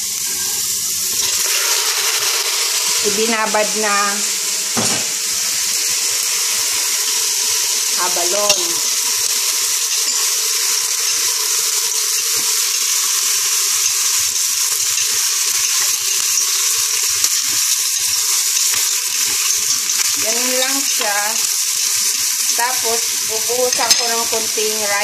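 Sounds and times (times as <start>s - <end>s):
food sizzling in a pot: 0.0s - 25.0s
utensil clacking and scraping a pot: 0.2s - 4.3s, 4.9s - 25.0s.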